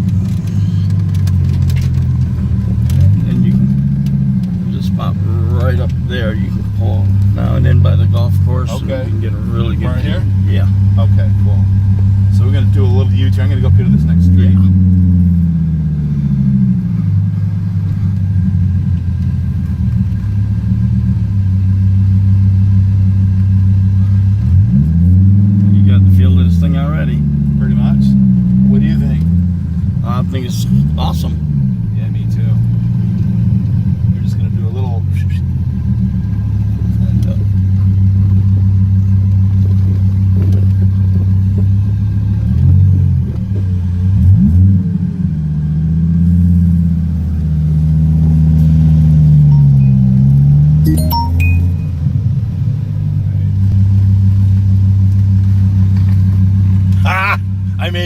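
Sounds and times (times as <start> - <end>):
car engine from inside cabin: 0.0 - 58.0.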